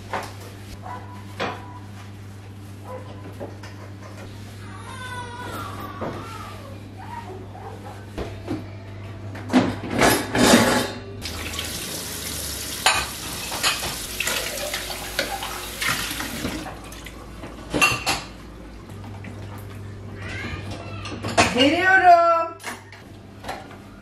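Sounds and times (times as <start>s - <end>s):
dishes and cutlery clattering: 9.5s - 11.1s, 12.8s - 16.6s, 17.7s - 18.4s
tap running: 11.2s - 17.6s.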